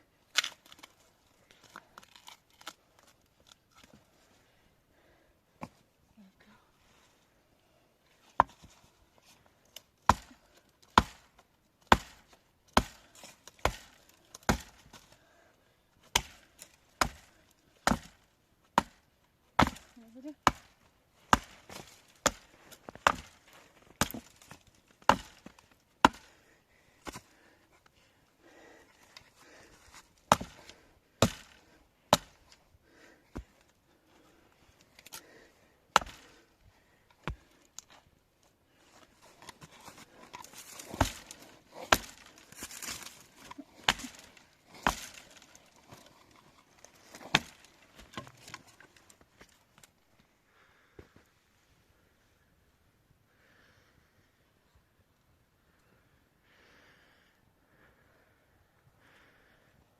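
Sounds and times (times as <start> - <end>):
axe chopping into wood: 10.0 - 11.3, 11.9 - 13.0, 13.6 - 15.0, 16.1 - 23.4, 24.0 - 24.5, 25.1 - 26.3, 30.3 - 32.5, 35.9 - 36.4, 40.5 - 45.4, 47.0 - 48.5.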